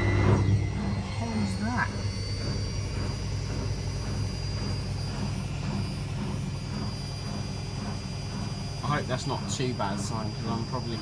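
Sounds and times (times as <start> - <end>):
washing machine spinning: 0.0 - 11.0
faint high whine: 8.8 - 11.0.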